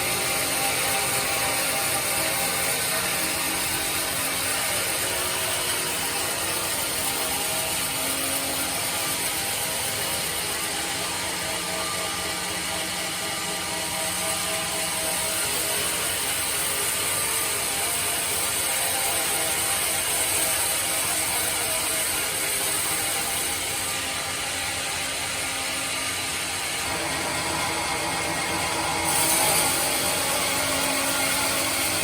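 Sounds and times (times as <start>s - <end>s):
bandsaw whirring: 23.7s - 32.0s.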